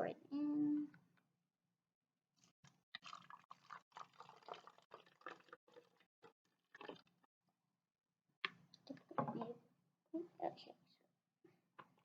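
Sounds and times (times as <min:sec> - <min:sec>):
liquid trickling through funnel: 0:03.0 - 0:07.3.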